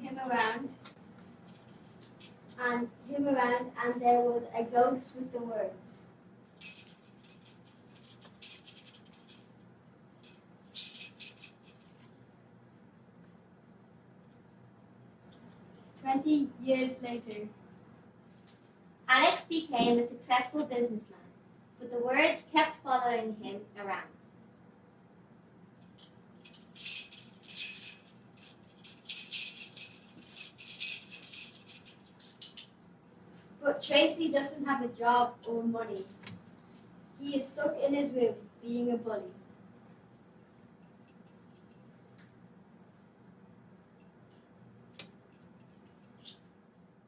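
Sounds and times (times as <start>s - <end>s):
rattle shaken by hand: 6.6s - 12.1s, 25.8s - 33.2s.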